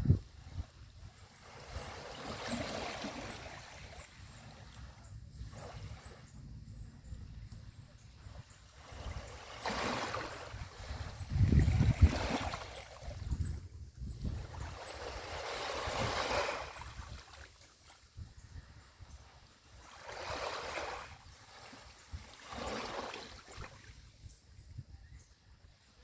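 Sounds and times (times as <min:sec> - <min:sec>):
small waves washing on beach: 0:00.0 - 0:06.3, 0:08.3 - 0:13.5, 0:14.2 - 0:18.2, 0:19.2 - 0:24.2.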